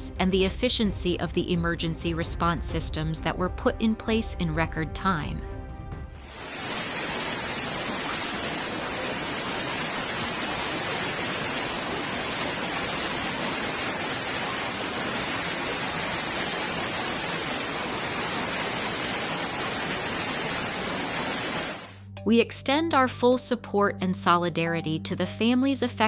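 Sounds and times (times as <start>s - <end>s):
storm water rushing: 6.0s - 22.0s.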